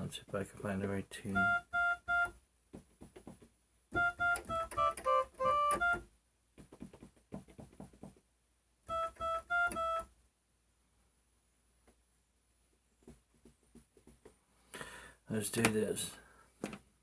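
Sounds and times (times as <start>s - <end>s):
electronic keyboard high notes: 1.3s - 2.3s, 3.9s - 6.1s, 8.9s - 10.1s
key tapping: 2.1s - 6.0s, 6.6s - 8.2s.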